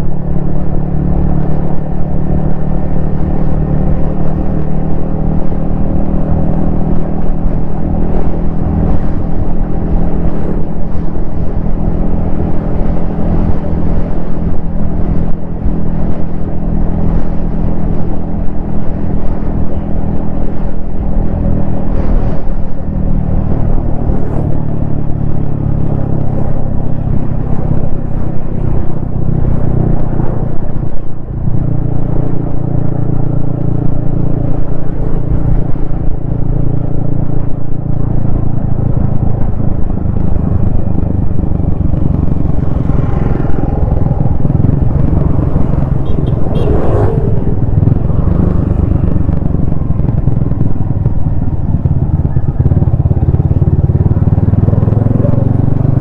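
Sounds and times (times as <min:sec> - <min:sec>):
motorcycle engine revving: 0:38.2 - 0:56.0.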